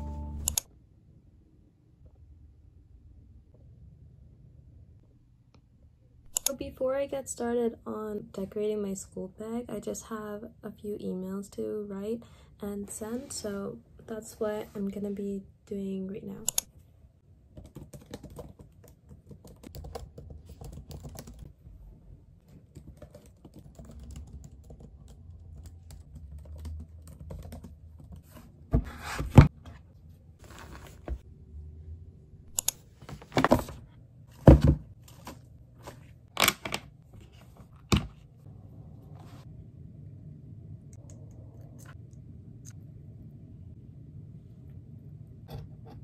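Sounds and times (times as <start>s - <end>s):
laptop keyboard typing: 17.6s - 21.5s, 22.5s - 28.2s.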